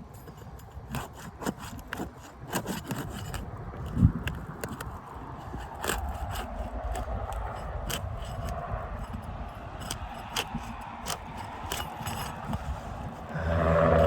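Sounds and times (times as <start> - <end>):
tool scraping under roof shingles: 0.0 - 14.0
wind rumbling on microphone: 0.2 - 14.0.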